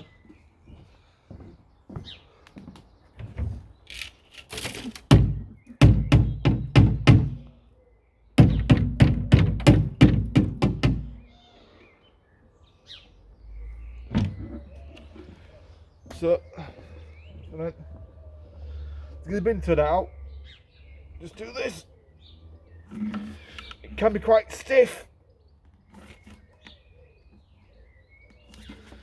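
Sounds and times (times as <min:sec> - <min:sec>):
vacuum bin knocking thunks: 0:05.1 - 0:07.5, 0:08.4 - 0:11.3.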